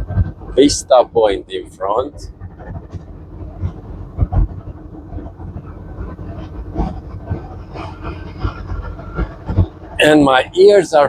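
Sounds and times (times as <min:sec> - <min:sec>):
low road rumble: 0:00.0 - 0:11.0
truck engine braking: 0:00.0 - 0:11.0
cab knocking and rattling: 0:02.2 - 0:10.6.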